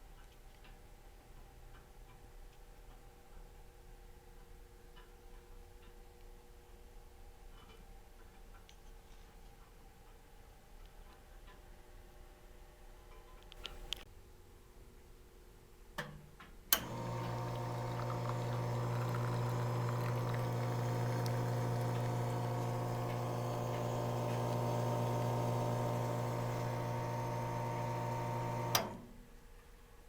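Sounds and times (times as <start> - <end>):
espresso machine pump humming: 16.8 - 29.0
espresso machine switch click: 16.8 - 29.0
liquid pouring: 16.9 - 28.7.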